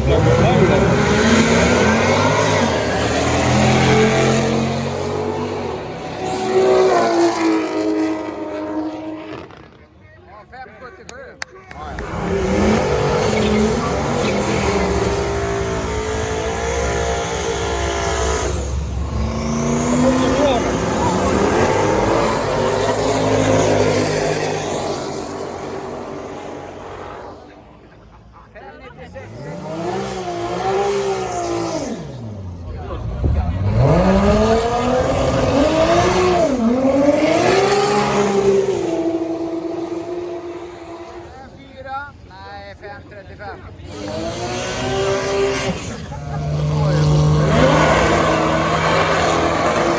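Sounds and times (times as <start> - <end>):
race car engine at full throttle: 0.0 - 49.9.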